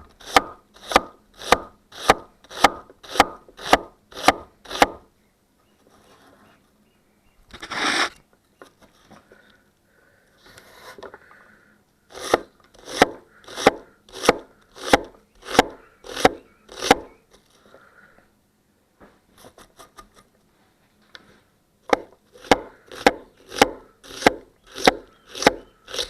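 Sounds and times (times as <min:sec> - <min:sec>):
knife chopping on a board: 0:00.2 - 0:05.0, 0:12.2 - 0:17.2, 0:21.9 - 0:26.0.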